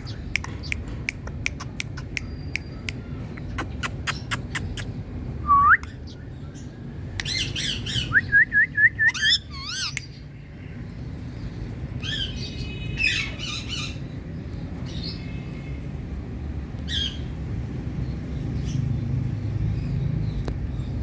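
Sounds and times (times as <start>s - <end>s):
parrot calls: 0.0s - 5.0s, 9.0s - 10.0s.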